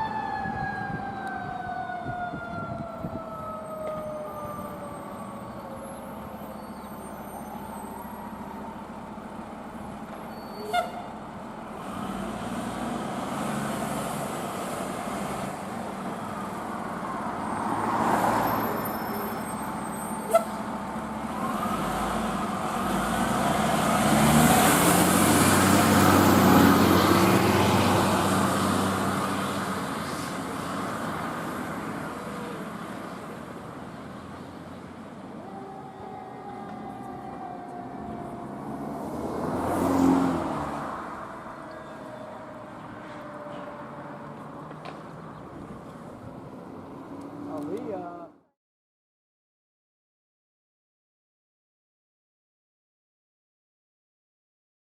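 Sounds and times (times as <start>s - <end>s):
siren wailing: 0.0s - 9.9s, 35.3s - 44.8s
heavy diesel engine driving past: 20.6s - 47.4s.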